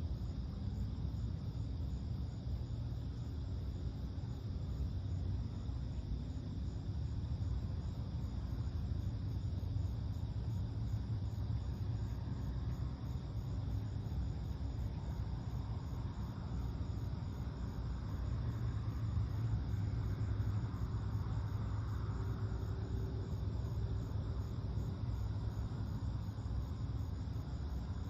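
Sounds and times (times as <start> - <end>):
insects chirping: 0.0 - 28.0
distant road traffic: 6.8 - 28.0.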